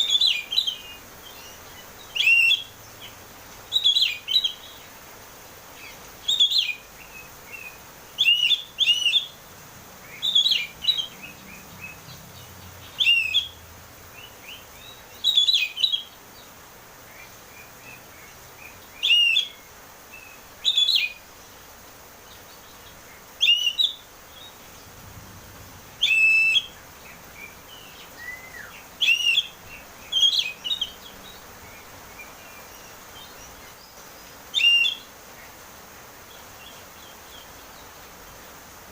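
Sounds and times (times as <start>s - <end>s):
bird singing whistled phrases: 0.0s - 2.7s, 3.7s - 4.7s, 6.2s - 9.4s, 10.2s - 11.2s, 12.9s - 13.6s, 14.2s - 16.1s, 19.0s - 19.6s, 20.2s - 21.2s, 23.4s - 24.0s, 26.0s - 26.8s, 27.4s - 31.0s, 34.5s - 35.1s.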